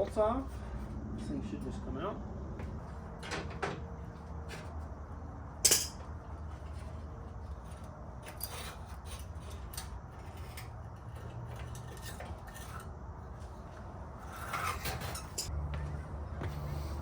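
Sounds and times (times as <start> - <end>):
steady low hum: 0.0 - 17.0
hand tools clinking on metal: 5.6 - 6.1.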